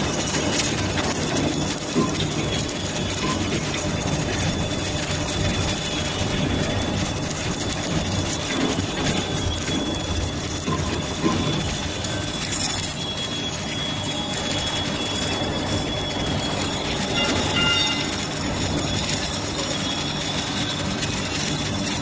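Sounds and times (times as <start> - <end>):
industrial machinery hum and rumble: 0.0 - 22.0
thin high whine: 9.1 - 22.0.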